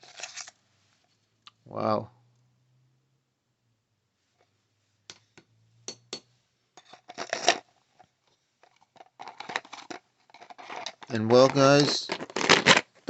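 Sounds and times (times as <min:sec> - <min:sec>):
clattering scrape: 0:00.0 - 0:00.6, 0:06.8 - 0:08.0, 0:08.6 - 0:13.0
light handling noises: 0:06.8 - 0:12.8.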